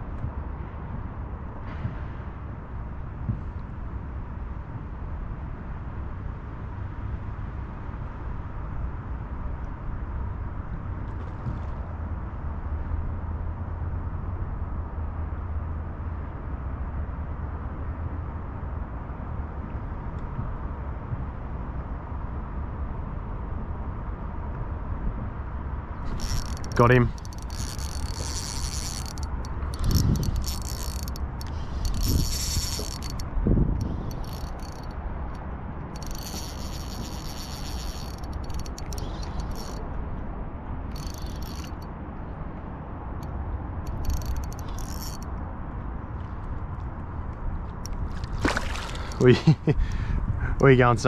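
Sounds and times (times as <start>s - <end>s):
wind buffeting microphone: 24.6s - 42.6s, 43.8s - 51.0s
fishing reel clicking and whirring: 26.1s - 39.9s, 40.9s - 41.9s, 43.8s - 45.3s.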